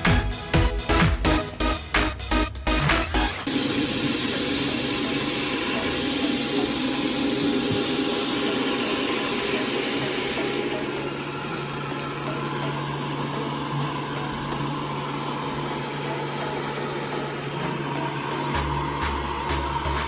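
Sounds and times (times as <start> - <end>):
music with steady beat: 0.0 - 3.7, 12.9 - 20.0
vacuum cleaner motor whirring: 3.4 - 20.0.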